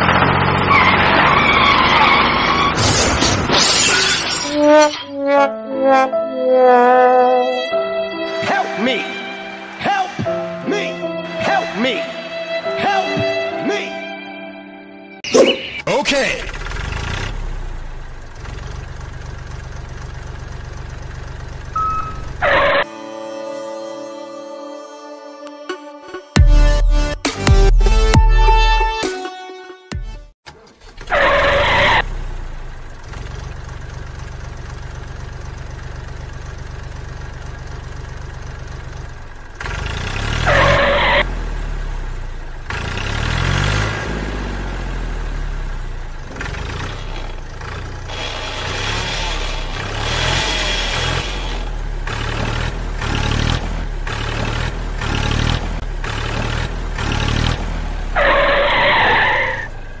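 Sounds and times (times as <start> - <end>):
toy tractor motor humming: 46.9 - 52.5.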